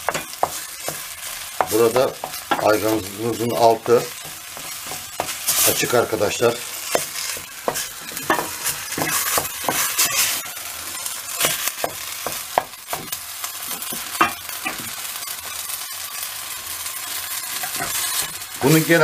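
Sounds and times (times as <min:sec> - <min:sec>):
potato mixture sizzling in pot: 0:00.0 - 0:19.0
wooden spoon scraping pot: 0:01.6 - 0:11.7.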